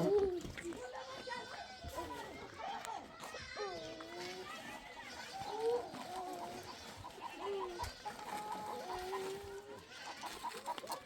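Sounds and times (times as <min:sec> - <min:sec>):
chickens clucking: 0:00.0 - 0:00.4, 0:05.0 - 0:11.0.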